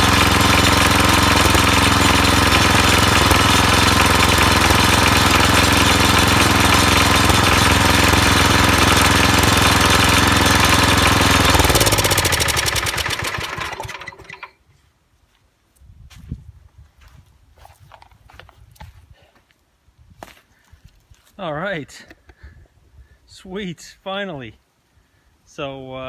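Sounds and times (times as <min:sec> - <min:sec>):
tractor engine running: 0:00.0 - 0:14.5.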